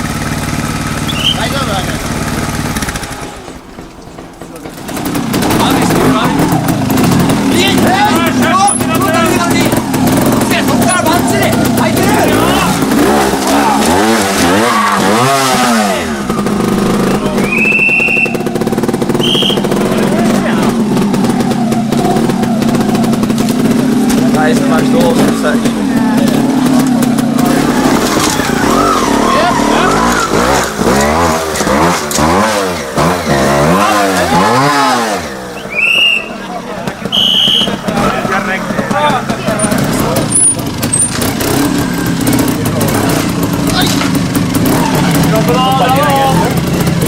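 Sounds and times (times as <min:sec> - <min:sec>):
motorcycle engine revving and idling: 0:00.0 - 0:47.0
high whistle tones: 0:01.0 - 0:01.7, 0:17.3 - 0:19.8, 0:35.5 - 0:36.5, 0:37.1 - 0:37.8.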